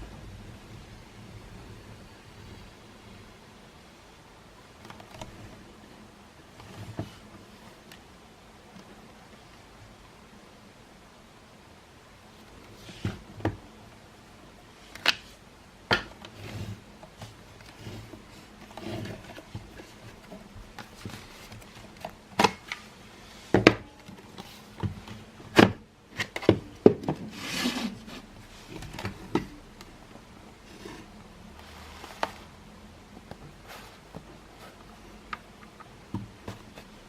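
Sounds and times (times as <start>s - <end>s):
plastic rubbing and scraping: 16.2s - 29.8s
rustling scrape: 16.3s - 22.0s, 27.2s - 29.1s, 30.6s - 32.6s, 33.6s - 35.1s.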